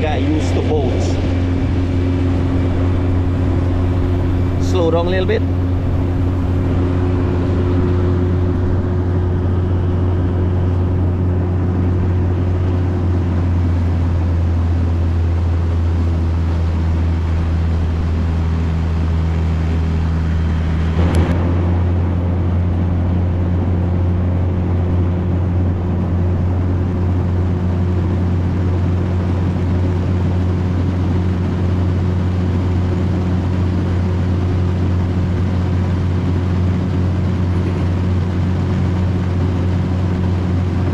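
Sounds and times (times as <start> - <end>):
water rushing: 0.0 - 15.6
motorboat engine humming: 0.0 - 40.9.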